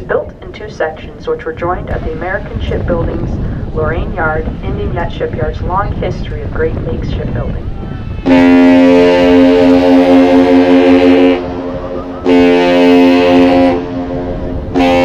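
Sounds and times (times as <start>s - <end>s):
air horn blasts: 8.0s - 15.0s.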